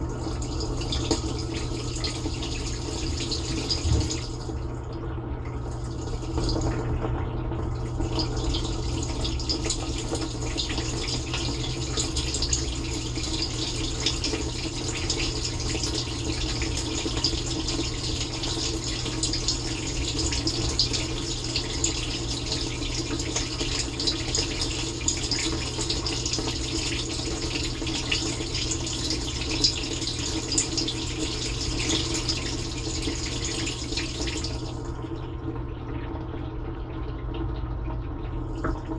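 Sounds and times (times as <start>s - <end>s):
wash pump hum: 0.0s - 38.9s.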